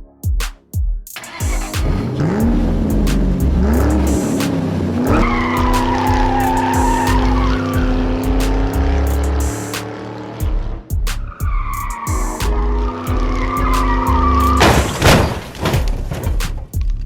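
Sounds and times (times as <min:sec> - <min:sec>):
music with heavy beat: 0:00.0 - 0:15.2, 0:15.8 - 0:17.0
car engine revving: 0:01.2 - 0:15.2
tyres squealing: 0:03.7 - 0:09.4, 0:11.3 - 0:15.5.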